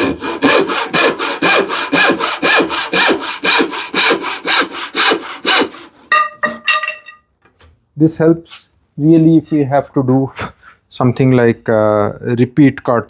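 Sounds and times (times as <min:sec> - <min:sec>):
hand saw cutting wood: 0:00.0 - 0:06.1.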